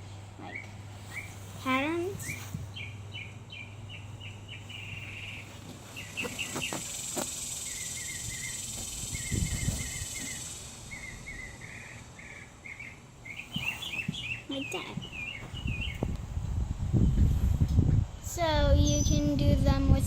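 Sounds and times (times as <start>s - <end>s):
small bird chirping: 0.4s - 16.1s
high insect-like hiss: 6.0s - 12.0s.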